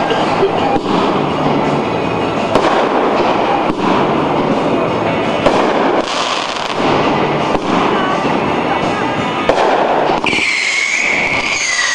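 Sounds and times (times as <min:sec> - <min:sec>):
fireworks crackling: 0:00.2 - 0:11.9
sharp firework cracks: 0:00.8 - 0:01.4, 0:02.4 - 0:04.3, 0:05.4 - 0:08.2, 0:09.4 - 0:11.9.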